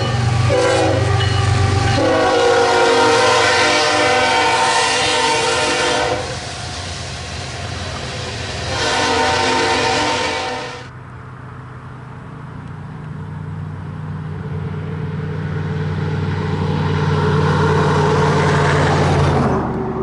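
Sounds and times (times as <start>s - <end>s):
locomotive air horn: 0.0s - 6.5s, 8.6s - 10.9s
train rumbling: 0.0s - 20.0s.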